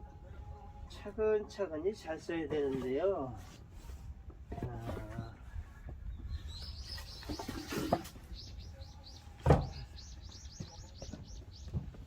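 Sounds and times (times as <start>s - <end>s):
bird chirping: 5.1s - 12.0s
firewood logs knocking: 9.4s - 9.8s
heavy log thud: 9.4s - 9.8s.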